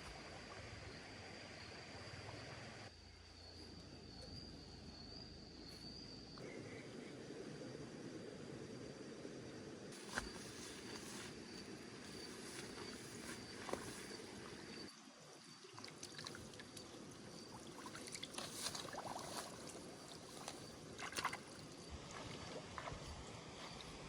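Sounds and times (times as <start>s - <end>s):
steady outdoor hiss: 0.0s - 24.0s
water sloshing and splashing: 15.4s - 24.0s.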